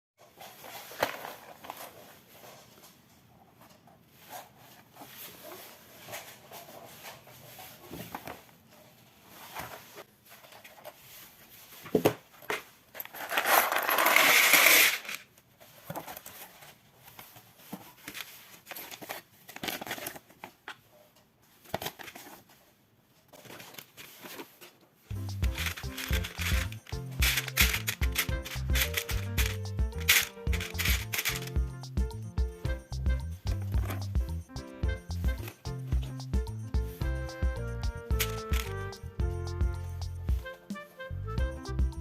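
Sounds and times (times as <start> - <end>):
loose plastic pieces rattling: 12.9 - 15.2, 25.1 - 31.6, 38.1 - 38.8
plastic toy bricks clicking: 25.4 - 31.6, 38.2 - 38.7.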